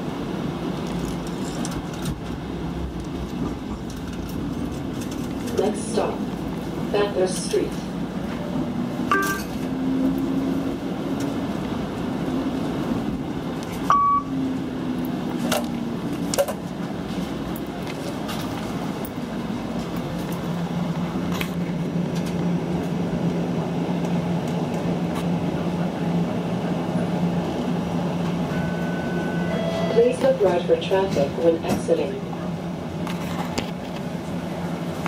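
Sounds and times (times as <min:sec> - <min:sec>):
streetcar running noise: 0:00.0 - 0:35.0
short electronic beeps: 0:13.9 - 0:14.3, 0:28.5 - 0:30.2.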